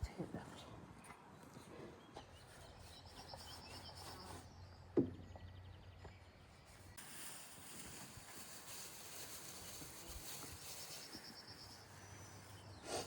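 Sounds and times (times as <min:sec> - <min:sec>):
faint bird chirps: 0:02.1 - 0:06.8, 0:10.6 - 0:13.0.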